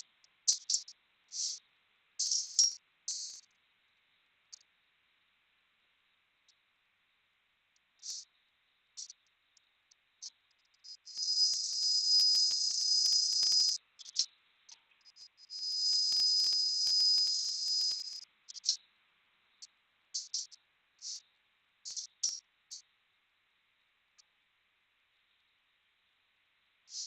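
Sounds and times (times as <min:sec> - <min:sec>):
short clicks and blips: 0:11.1 - 0:13.8, 0:15.5 - 0:18.2.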